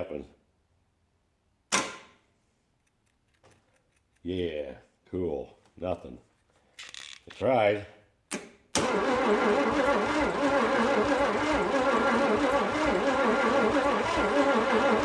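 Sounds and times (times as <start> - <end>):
starter cranking engine: 8.8 - 15.0.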